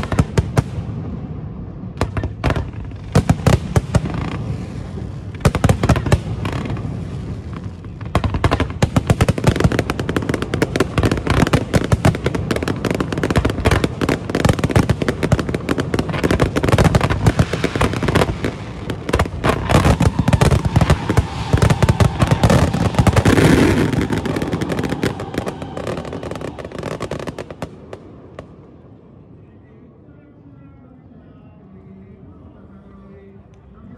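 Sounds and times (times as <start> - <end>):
fireworks crackling and banging: 0.0 - 29.0.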